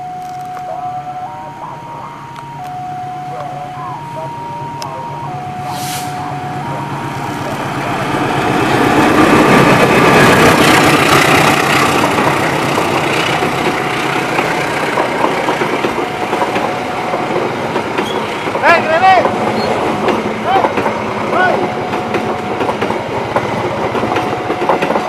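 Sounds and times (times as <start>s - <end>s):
diesel locomotive passing: 0.0s - 25.0s
rushing wheel and air noise: 5.6s - 24.5s.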